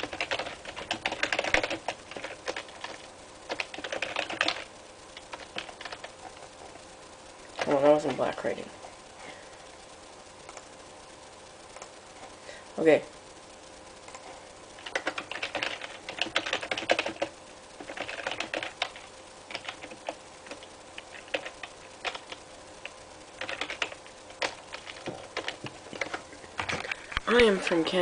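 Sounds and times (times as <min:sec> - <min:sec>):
typing on computer keyboard: 0:00.0 - 0:06.1, 0:14.8 - 0:22.4, 0:23.4 - 0:26.2.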